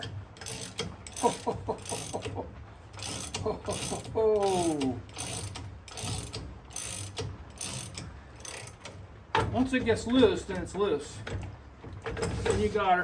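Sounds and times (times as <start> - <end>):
ratchet wrench clicking: 0.0 - 2.2, 3.0 - 8.9.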